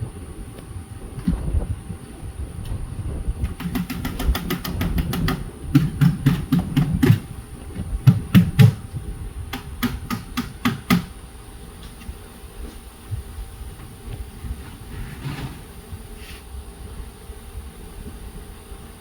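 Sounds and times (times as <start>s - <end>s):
sharp clicks and knocks: 3.4s - 7.3s, 9.5s - 11.1s
dull thumps: 3.5s - 11.2s.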